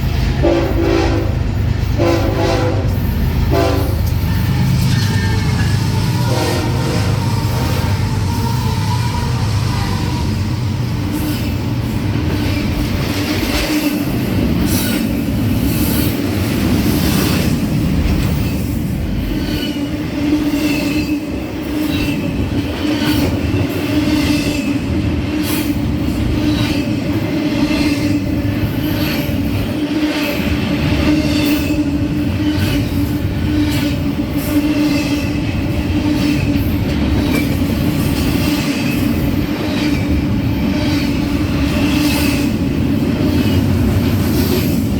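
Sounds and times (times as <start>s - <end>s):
freight train cars rolling: 0.0s - 44.9s.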